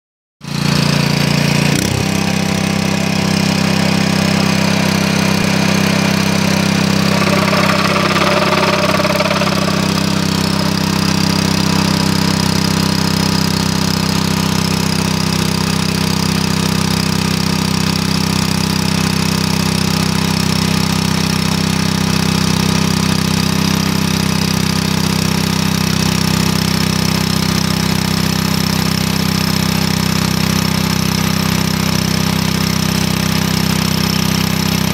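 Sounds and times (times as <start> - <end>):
rail drill engine humming: 0.7 - 14.8
rough high-pitched grinding: 2.6 - 13.8.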